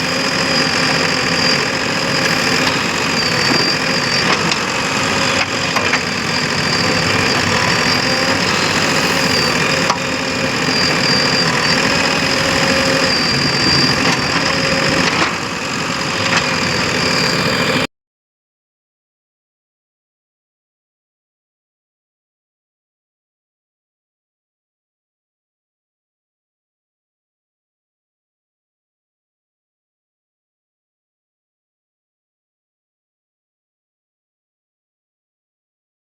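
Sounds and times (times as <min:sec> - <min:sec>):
diesel engine running: 0:00.0 - 0:17.9.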